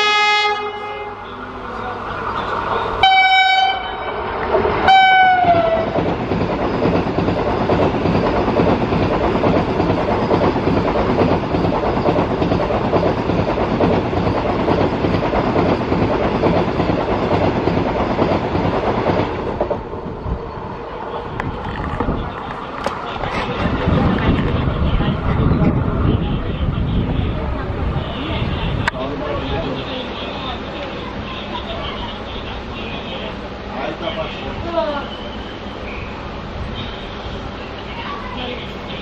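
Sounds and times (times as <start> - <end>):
train horn blasts: 0.0 - 1.4, 2.9 - 4.2, 4.8 - 6.0
train coaches rushing past: 0.0 - 39.0.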